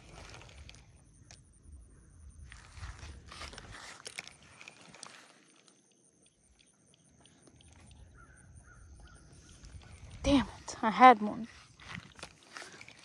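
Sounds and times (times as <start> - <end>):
wind rumble on microphone: 0.0 - 4.0, 7.9 - 13.0
handling noise rustling: 2.5 - 6.0, 9.5 - 13.0.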